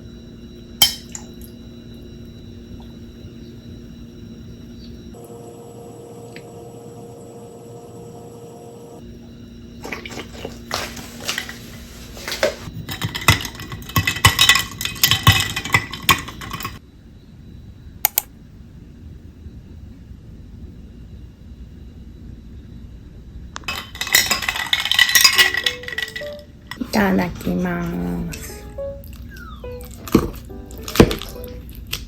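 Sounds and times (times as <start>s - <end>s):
dishes and utensils clattering: 9.8s - 16.8s, 23.7s - 27.7s
sharp clicks: 18.1s - 18.3s.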